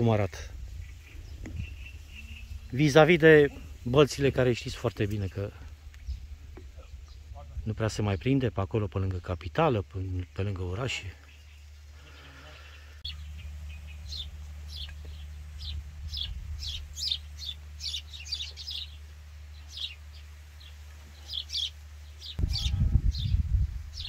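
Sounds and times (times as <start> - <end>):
small birds chirping: 0.0 - 24.0
steady low rumble: 12.8 - 20.8.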